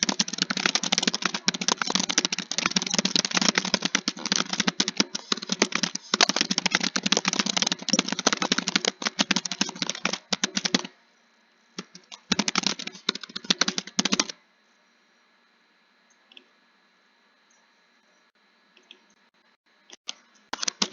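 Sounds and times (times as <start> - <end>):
computer keyboard typing: 0.0 - 10.9, 11.8 - 14.4, 20.5 - 20.9.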